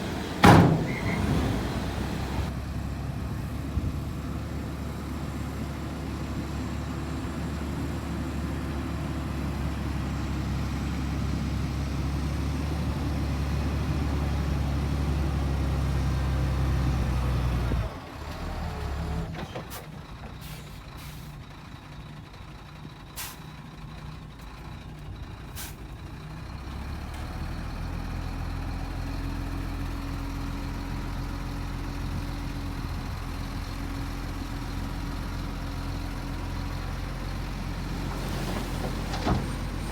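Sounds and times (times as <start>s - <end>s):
heavy diesel engine working: 0.0s - 3.2s, 20.0s - 39.9s.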